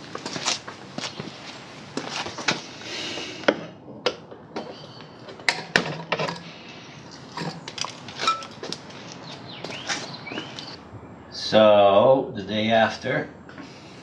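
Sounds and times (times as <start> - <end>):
metal tools clinking and knocking: 7.4 - 8.8.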